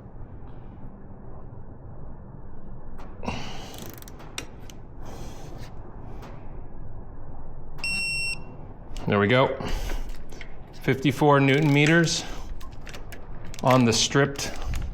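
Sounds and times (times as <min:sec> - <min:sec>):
low steady hum: 0:00.0 - 0:14.9
wrench ratchet clicks and creaks: 0:03.7 - 0:04.3.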